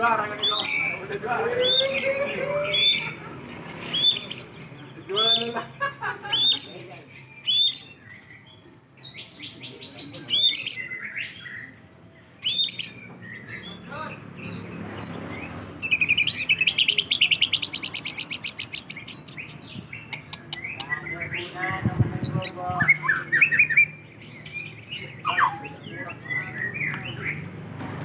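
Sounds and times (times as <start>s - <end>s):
bird singing whistled phrases: 3.9s - 4.5s, 12.4s - 13.8s, 22.8s - 27.4s.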